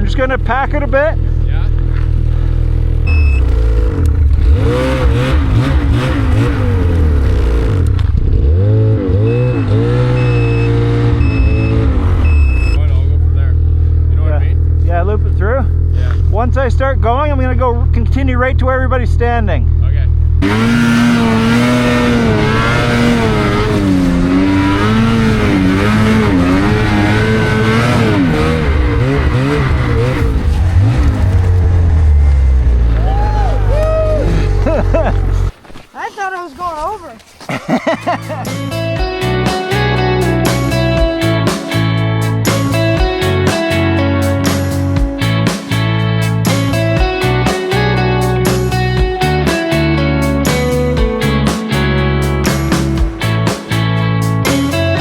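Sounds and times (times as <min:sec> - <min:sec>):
snowmobile engine revving: 0:00.0 - 0:35.5.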